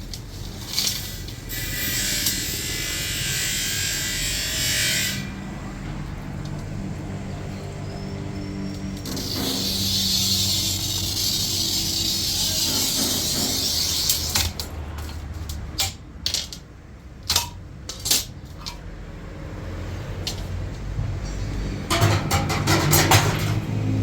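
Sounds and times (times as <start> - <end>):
clinks of small hard objects: 7.8 - 16.7.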